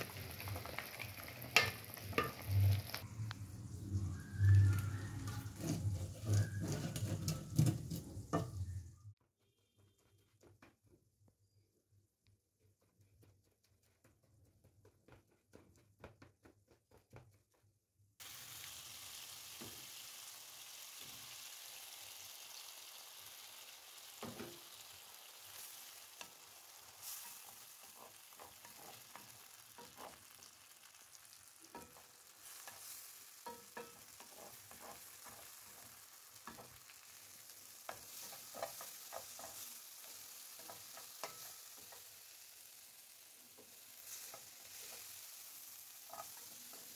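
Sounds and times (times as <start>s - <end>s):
food sizzling in a frying pan: 0.0s - 9.2s, 18.2s - 46.9s
wooden spatula scraping pan: 4.0s - 9.0s, 25.4s - 42.3s, 43.5s - 46.9s.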